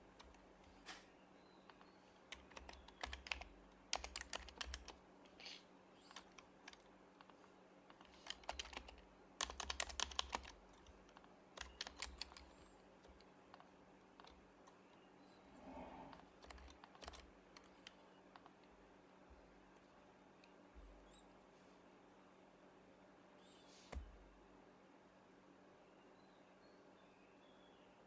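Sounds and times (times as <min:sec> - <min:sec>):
soft keyboard typing: 0:00.0 - 0:15.3, 0:16.0 - 0:21.3.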